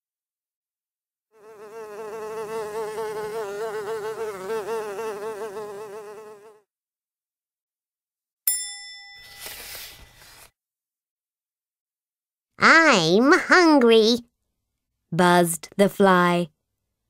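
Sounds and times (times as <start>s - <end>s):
fly buzzing: 1.3s - 6.7s.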